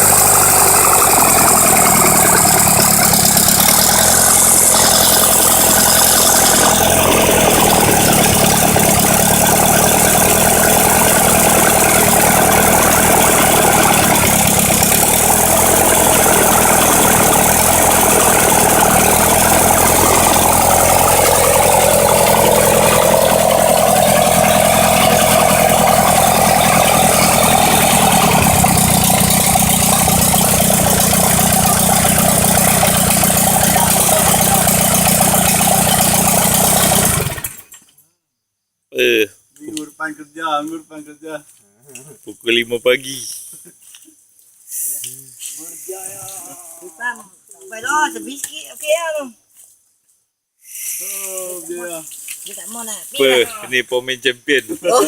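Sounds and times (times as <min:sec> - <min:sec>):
engine idling: 0:00.0 - 0:37.8.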